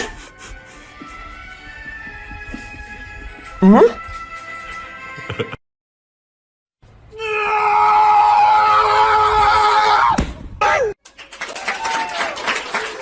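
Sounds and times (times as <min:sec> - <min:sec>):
loud scream: 0:07.1 - 0:11.0.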